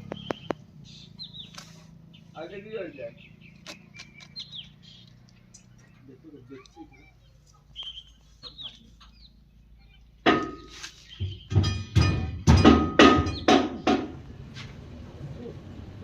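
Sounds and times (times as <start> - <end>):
faint bird chirps: 0.0 - 11.5
loud sharp ringing knocks: 10.2 - 14.2.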